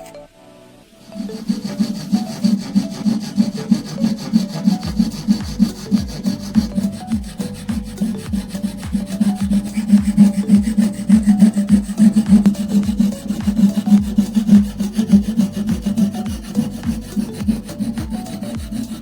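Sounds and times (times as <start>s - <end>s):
abrasive rasping on knife blade: 1.1s - 19.0s.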